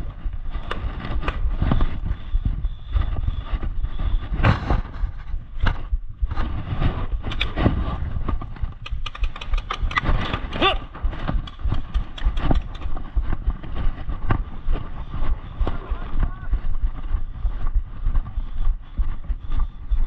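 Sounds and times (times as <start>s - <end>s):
steady low rumble: 0.0s - 20.0s
sharp clicks and knocks: 8.3s - 10.6s, 11.2s - 13.1s.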